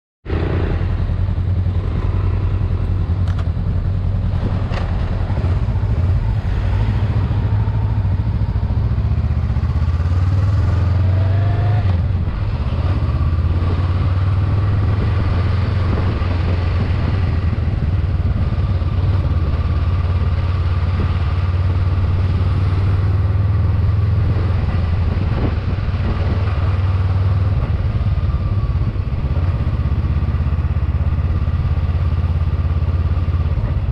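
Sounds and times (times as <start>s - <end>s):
motorcycle engine running: 0.3s - 33.9s
rushing noise: 4.0s - 18.8s.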